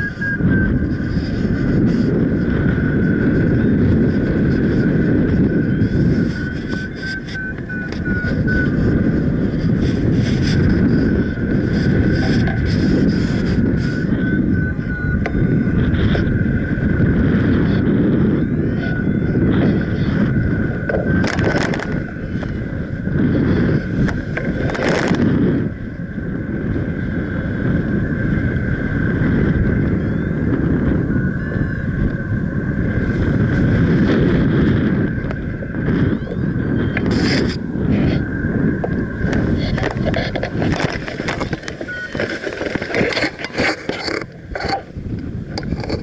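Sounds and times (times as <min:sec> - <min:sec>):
wind buffeting microphone: 0:00.0 - 0:46.0
thin high tone: 0:41.7 - 0:42.4.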